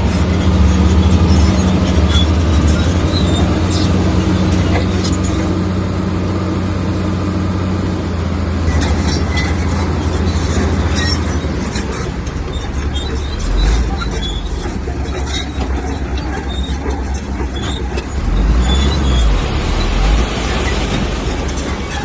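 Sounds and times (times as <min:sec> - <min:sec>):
bulldozer diesel engine under load: 0:00.0 - 0:22.0
clanks and knocks: 0:08.7 - 0:22.0.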